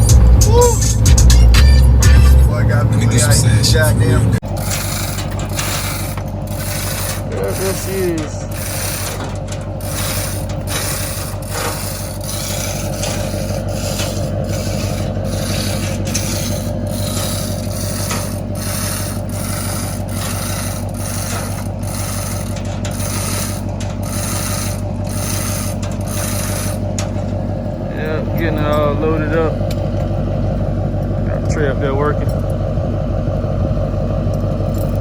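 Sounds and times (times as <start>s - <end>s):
mechanical rubbing and ratcheting: 0.0s - 27.6s
steady machine hum: 0.0s - 35.0s.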